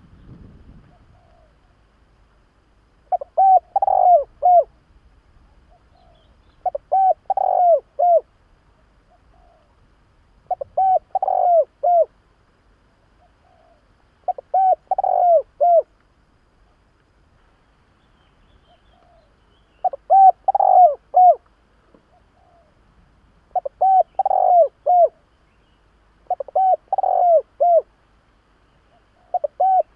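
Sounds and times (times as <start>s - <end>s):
dove cooing: 0.8s - 1.8s, 3.1s - 4.8s, 5.5s - 8.3s, 9.0s - 9.8s, 10.4s - 12.2s, 13.2s - 15.9s, 18.7s - 22.8s, 23.5s - 25.3s, 26.2s - 27.9s, 28.9s - 29.9s.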